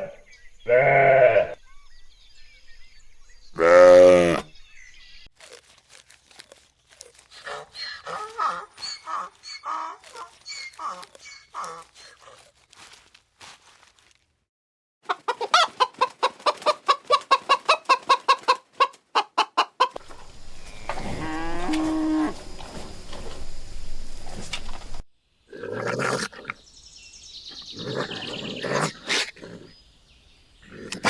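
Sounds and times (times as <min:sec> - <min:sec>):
chicken squawks: 0:07.4 - 0:12.4, 0:15.0 - 0:20.0
chickens clucking: 0:07.4 - 0:12.5, 0:15.0 - 0:23.4.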